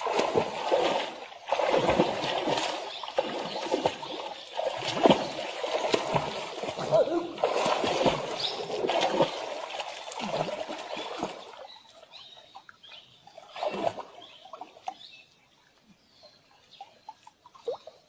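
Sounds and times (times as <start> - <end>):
water splashing: 0.0 - 12.0, 13.4 - 15.0.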